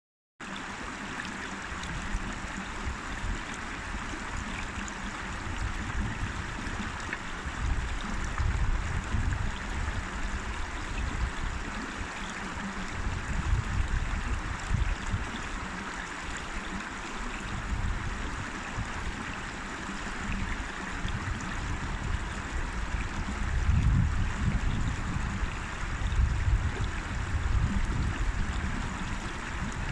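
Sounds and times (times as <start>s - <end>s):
river water rushing: 0.4s - 23.6s
low rumble of water: 0.4s - 29.9s.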